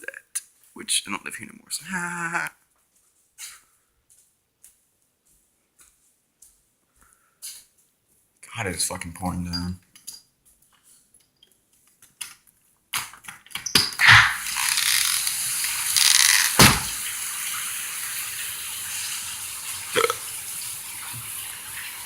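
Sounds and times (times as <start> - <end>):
sharp knock: 14.0 - 14.4, 16.5 - 17.0
heavy rain pouring: 14.4 - 22.0.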